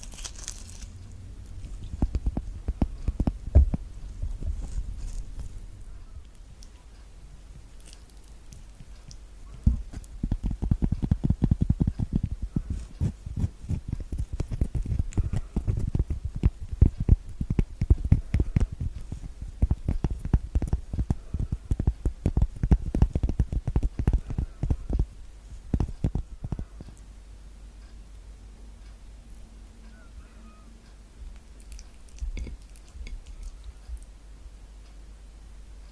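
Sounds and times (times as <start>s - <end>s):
rapid finger tapping: 1.5s - 4.7s, 8.5s - 27.1s.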